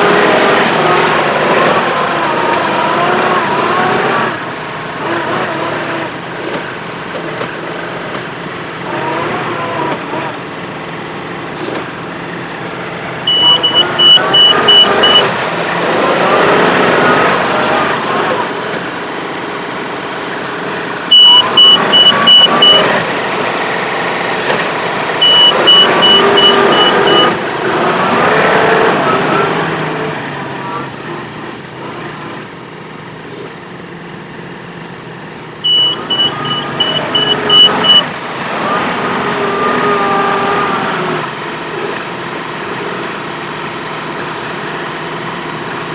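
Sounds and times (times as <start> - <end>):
tractor engine revving: 0.0 - 32.6, 35.6 - 45.9
rapid high-pitched beeping: 13.3 - 15.5, 21.1 - 23.1, 25.2 - 28.2, 35.6 - 38.1.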